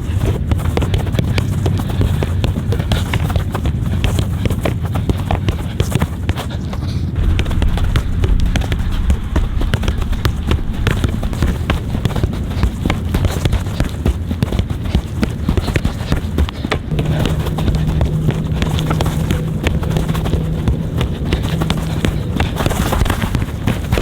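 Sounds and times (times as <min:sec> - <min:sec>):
feet kicking soccer ball: 0:00.0 - 0:24.0
low rumble: 0:07.2 - 0:14.1, 0:16.9 - 0:24.0.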